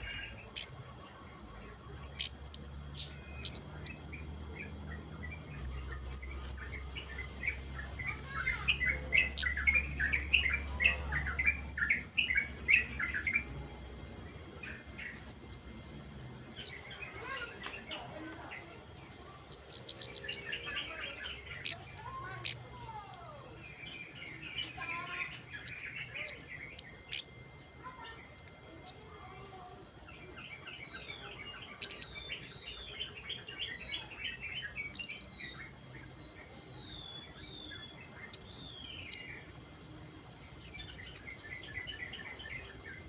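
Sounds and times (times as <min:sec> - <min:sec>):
birds chirping and chattering: 0:00.0 - 0:43.0
thin rising bird notes: 0:00.0 - 0:43.0
fast high bird trill: 0:05.2 - 0:13.5, 0:14.6 - 0:15.8.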